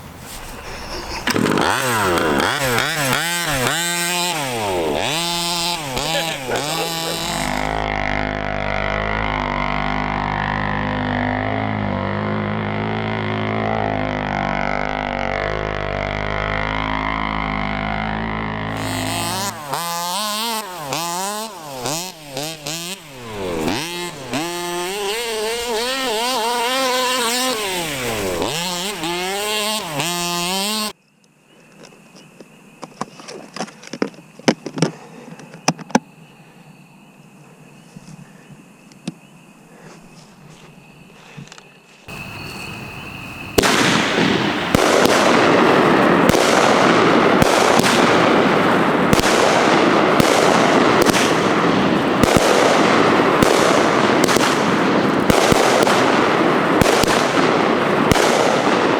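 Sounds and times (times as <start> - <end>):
small engine revving: 0.1 - 31.0, 42.1 - 58.9.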